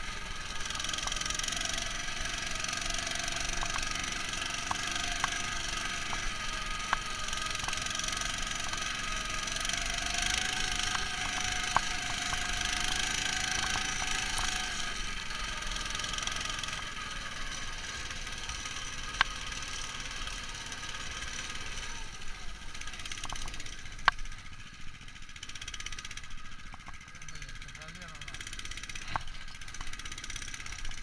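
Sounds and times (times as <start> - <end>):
muffled tractor engine running: 0.0 - 31.0
sharp clicks: 3.5 - 4.0, 10.7 - 12.6.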